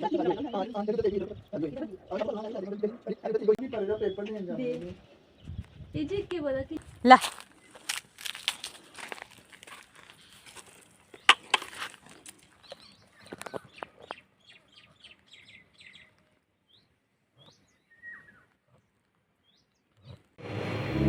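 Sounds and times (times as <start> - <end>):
small bird chirping: 12.5 - 18.8.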